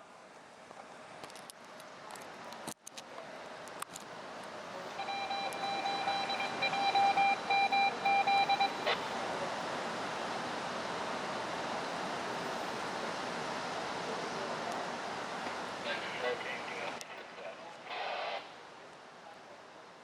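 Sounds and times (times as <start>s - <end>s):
electronic beeps: 5.0s - 9.0s
heavy rain: 8.6s - 18.6s.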